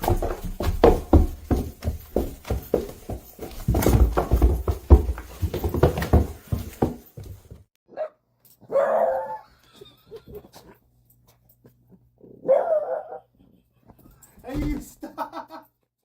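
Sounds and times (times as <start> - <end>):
dog barking: 7.9 - 9.5, 12.4 - 13.3.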